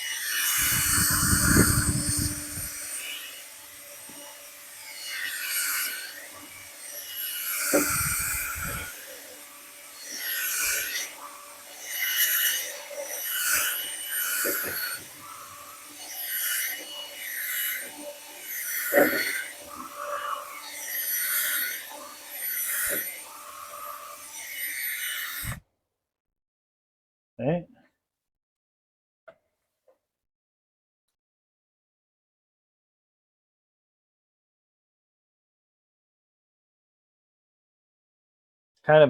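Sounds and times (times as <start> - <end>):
brush scraping inside vent duct: 0.6 - 3.2, 10.2 - 24.2.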